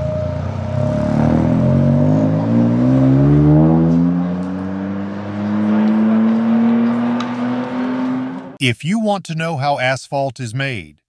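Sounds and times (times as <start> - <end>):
race car engine accelerating: 0.0 - 8.6.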